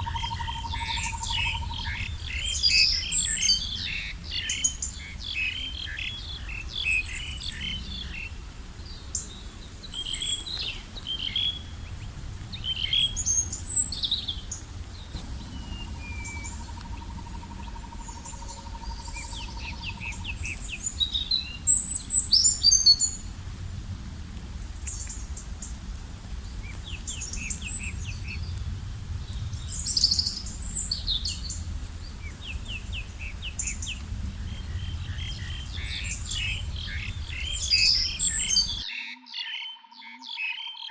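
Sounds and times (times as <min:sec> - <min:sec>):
birds chirping and singing: 0:00.0 - 0:23.3, 0:29.2 - 0:40.9
low rumble: 0:10.8 - 0:38.8.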